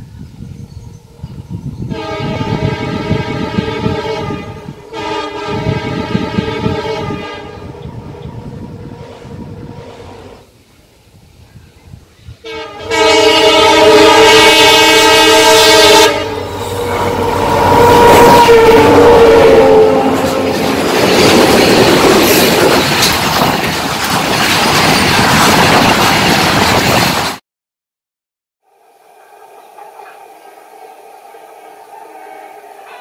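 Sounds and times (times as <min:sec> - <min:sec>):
locomotive horn blast: 0:01.9 - 0:10.4, 0:12.4 - 0:20.8
locomotive passing close: 0:13.2 - 0:27.4
freight wagons rumbling and clattering: 0:20.2 - 0:27.4.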